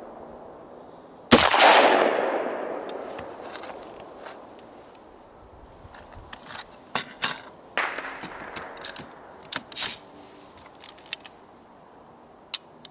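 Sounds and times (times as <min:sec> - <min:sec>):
rifle shots cracking: 0:00.0 - 0:04.8, 0:07.8 - 0:10.2.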